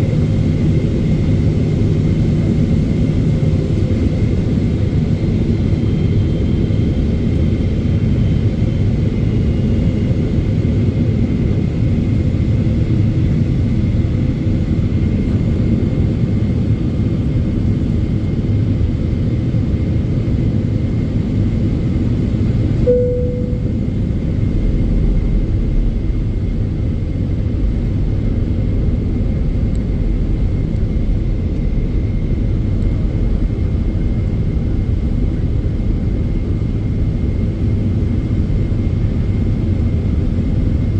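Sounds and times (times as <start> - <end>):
airplane cabin roar: 0.0 - 40.9
brief single tone: 22.8 - 24.0
faint steady whine: 22.8 - 24.1.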